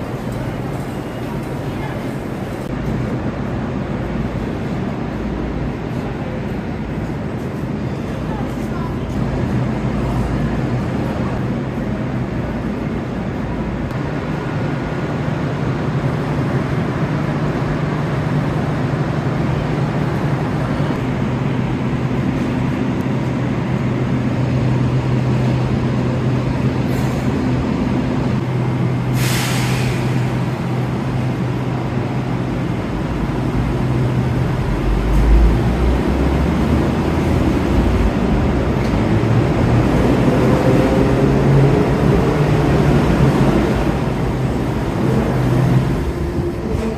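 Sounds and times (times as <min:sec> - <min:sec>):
compressed air hiss: 0:29.1 - 0:30.2
electric train humming: 0:30.0 - 0:46.9.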